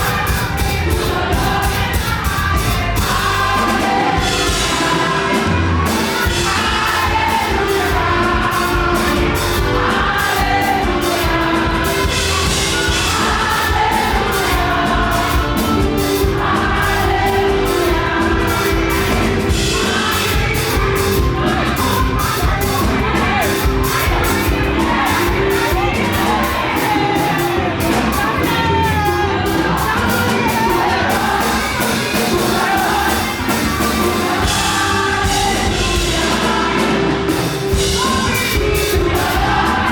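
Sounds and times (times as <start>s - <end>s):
crowd shouting and whooping: 0.0s - 39.9s
gospel singing over fast beat: 0.0s - 39.9s.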